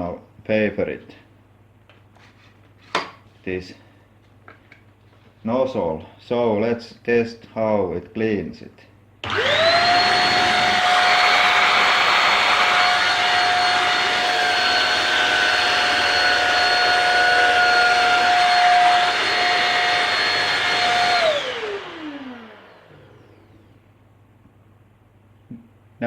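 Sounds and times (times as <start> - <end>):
motor spinning down: 9.2 - 23.8
vacuum cleaner whine: 9.2 - 24.0.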